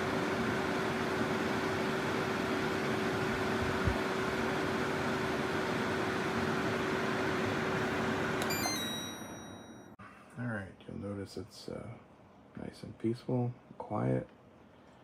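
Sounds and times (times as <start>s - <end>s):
air conditioner fan whoosh and hum: 0.0s - 8.4s.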